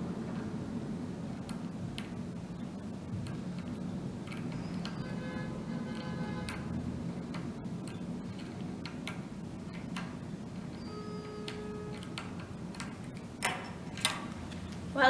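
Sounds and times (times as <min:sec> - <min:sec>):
screwdriver clicking: 0:05.9 - 0:15.0.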